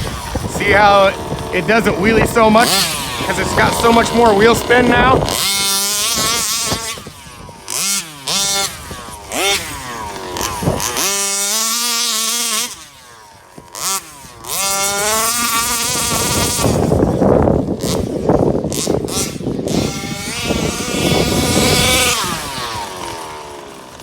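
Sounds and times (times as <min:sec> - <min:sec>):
rc car engine revving: 0:00.0 - 0:24.0.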